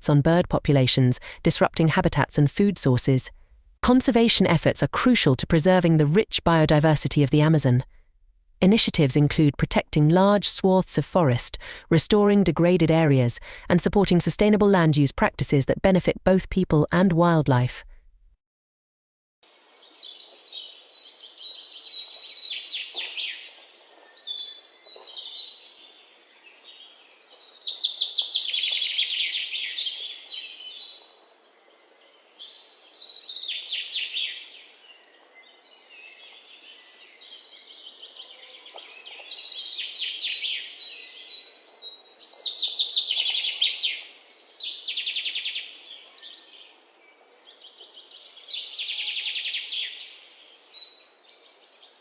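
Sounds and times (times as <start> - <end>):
faint steady hiss: 19.5 - 24.2.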